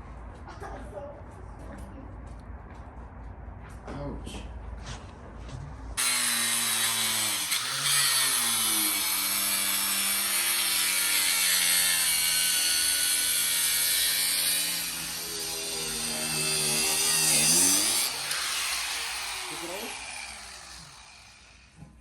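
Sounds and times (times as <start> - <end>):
angle grinder cutting tire: 6.0 - 21.9.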